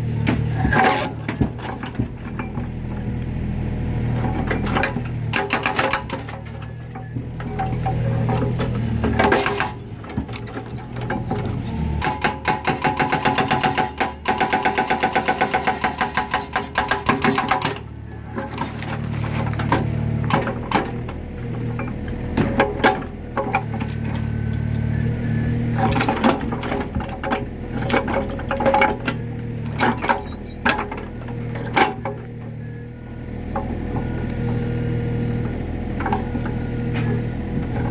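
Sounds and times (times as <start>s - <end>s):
excavator engine running: 0.0s - 37.9s
hydraulic breaker hammering concrete: 4.5s - 6.6s, 8.5s - 17.9s.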